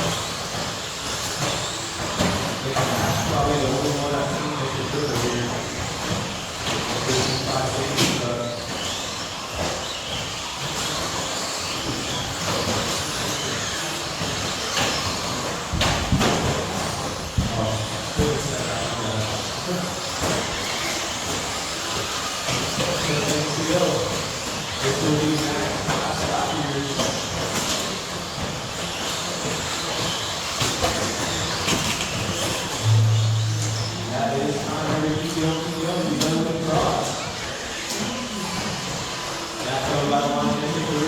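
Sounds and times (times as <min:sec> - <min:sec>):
whir of electric toy truck motors: 0:00.0 - 0:32.9, 0:35.2 - 0:41.0.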